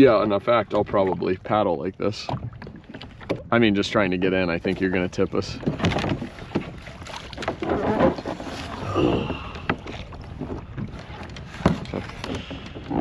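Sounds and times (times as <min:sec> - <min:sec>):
wind rumbling on microphone: 0:02.3 - 0:13.0.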